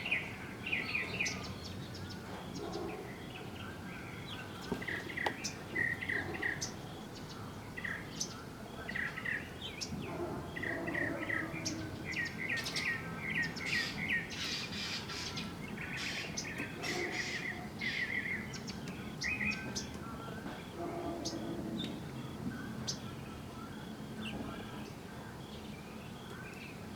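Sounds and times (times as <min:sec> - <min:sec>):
small birds chirping: 0:00.0 - 0:26.9.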